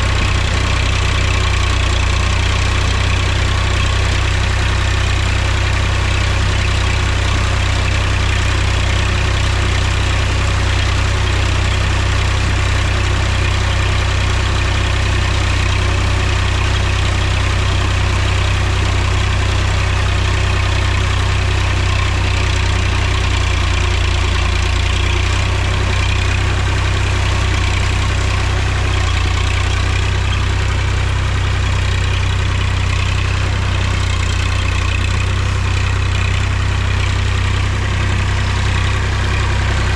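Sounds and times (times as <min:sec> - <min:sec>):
tractor diesel engine humming: 0:00.0 - 0:39.9.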